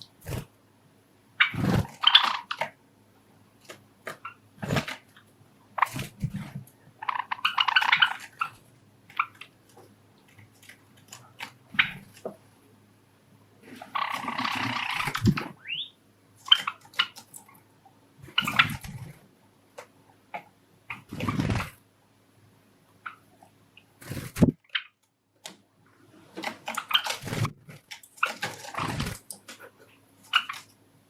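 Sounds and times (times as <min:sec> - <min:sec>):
birds scuffling and fluttering: 0:00.0 - 0:00.6, 0:01.4 - 0:02.8, 0:03.6 - 0:12.5, 0:13.6 - 0:15.8, 0:16.4 - 0:21.8, 0:23.9 - 0:30.8
sparrows chirping: 0:07.0 - 0:08.6, 0:13.9 - 0:17.4.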